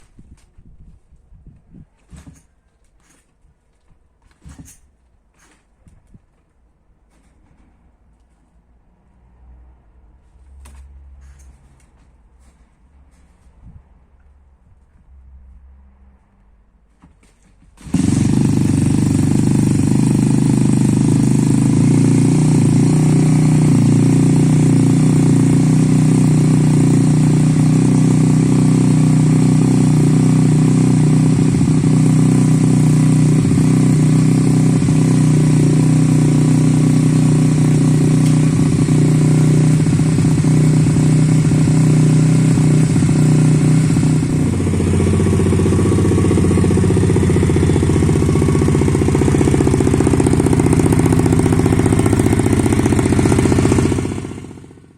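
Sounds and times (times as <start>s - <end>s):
pit bike engine running: 17.8s - 54.9s.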